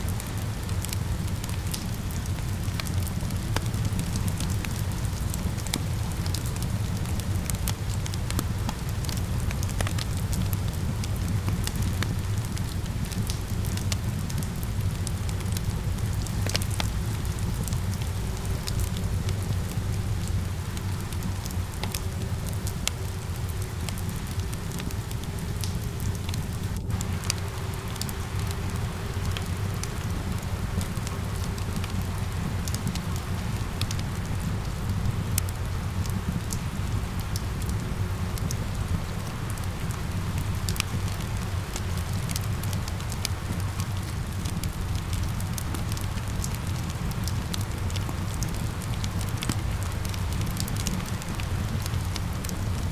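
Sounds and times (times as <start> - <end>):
steady rain: 0.0 - 52.9
wood fire crackling: 0.0 - 52.9.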